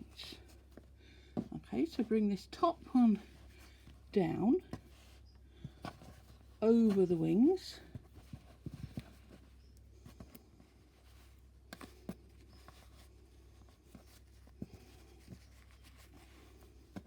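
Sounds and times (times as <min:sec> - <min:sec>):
rustling yarn and tissue: 0:00.0 - 0:17.0.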